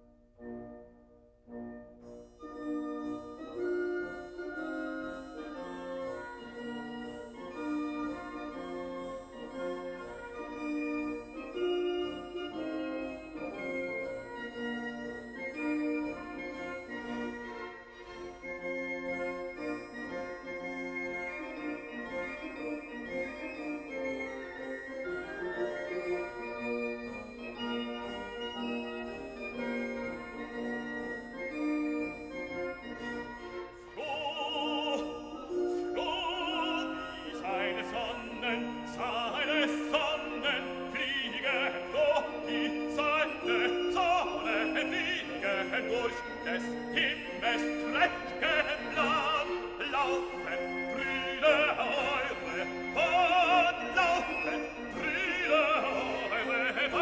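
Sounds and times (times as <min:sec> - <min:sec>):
operatic voice singing: 0:33.9 - 0:57.0.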